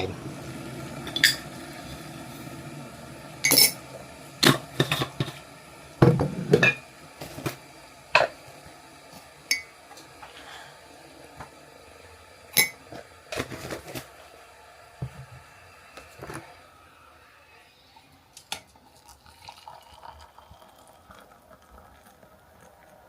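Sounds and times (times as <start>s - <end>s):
mug and spoon clinking: 3.4s - 3.8s.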